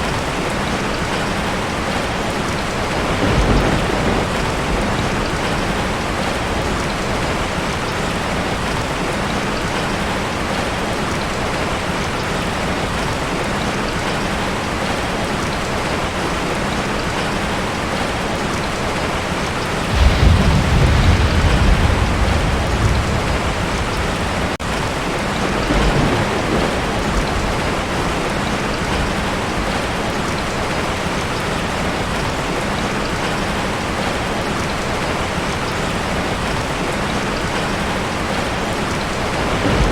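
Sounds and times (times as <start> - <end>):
heavy rain on a tin roof: 0.0 - 39.9
thunder rumbling: 1.8 - 9.0, 19.0 - 32.2, 38.3 - 39.9.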